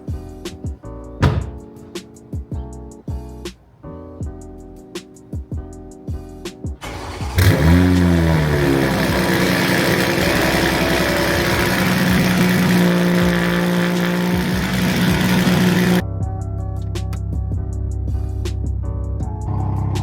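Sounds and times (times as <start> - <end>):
car engine starting and idling: 6.8 - 16.0.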